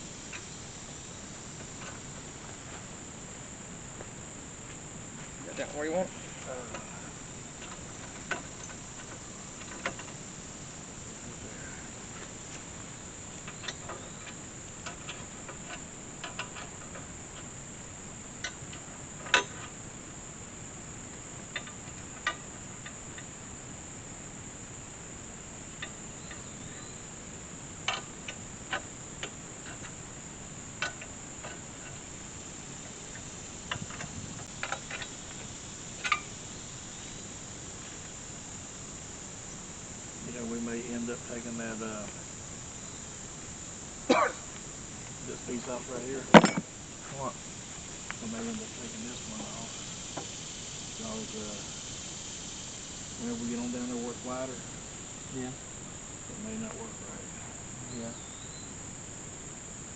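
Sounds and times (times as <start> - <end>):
high-pitched insect chorus: 0.0 - 59.9
clicks and knocks of metal parts: 7.6 - 10.2, 13.4 - 17.5, 18.4 - 19.8, 27.8 - 30.0, 30.8 - 32.1, 33.1 - 36.3, 46.3 - 46.7.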